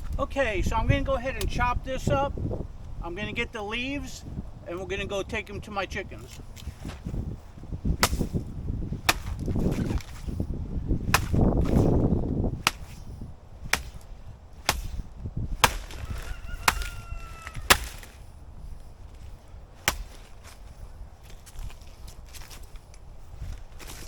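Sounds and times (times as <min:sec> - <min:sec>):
rustling stalk and leaves: 0:06.1 - 0:24.0
blade chopping plant stalk: 0:08.0 - 0:08.4, 0:09.0 - 0:10.3, 0:11.1 - 0:12.0, 0:12.6 - 0:13.1, 0:13.7 - 0:18.2, 0:19.8 - 0:20.4.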